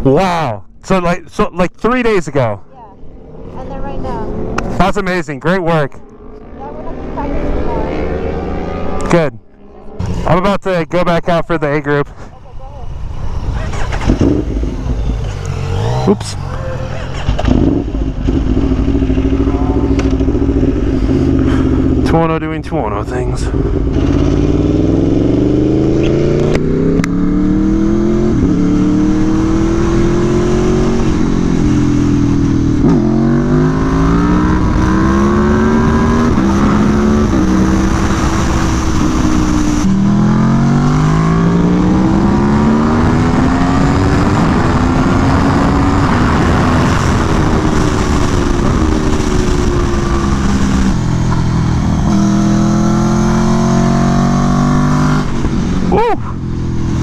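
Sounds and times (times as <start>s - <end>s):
motorcycle engine accelerating: 0.0s - 11.9s, 12.8s - 57.0s
wind noise: 12.9s - 22.0s, 23.2s - 57.0s.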